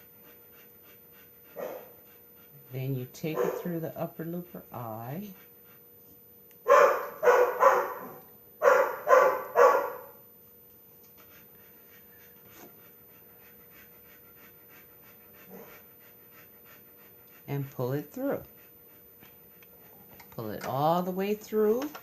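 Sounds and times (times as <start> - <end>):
dog panting faintly: 0.0 - 20.4
dog barking: 1.6 - 1.9, 3.3 - 3.7, 6.6 - 10.2.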